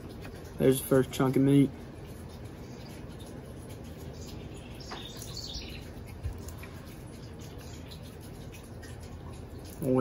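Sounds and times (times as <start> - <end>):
faint bird chirp: 3.9 - 8.2.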